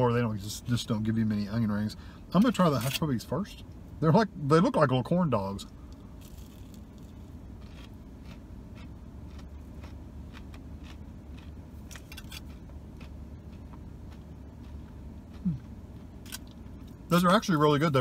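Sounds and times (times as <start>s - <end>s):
low hum in car cabin: 0.0s - 18.0s
person chewing crunchy food: 6.2s - 17.0s.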